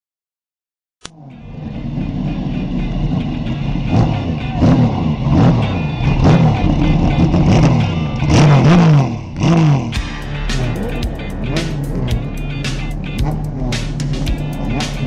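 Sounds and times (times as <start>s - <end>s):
racing car engines at full throttle: 1.1s - 15.0s.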